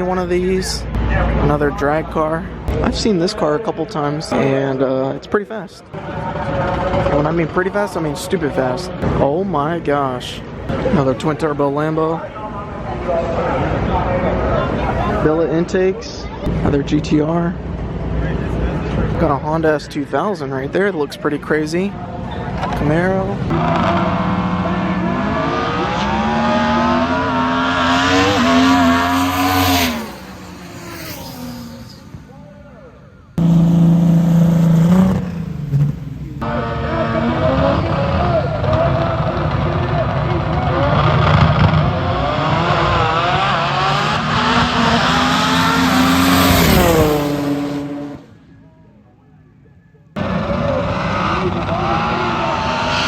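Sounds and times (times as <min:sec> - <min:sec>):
car engine revving: 0:22.5 - 0:32.7, 0:33.3 - 0:48.4, 0:50.2 - 0:53.0.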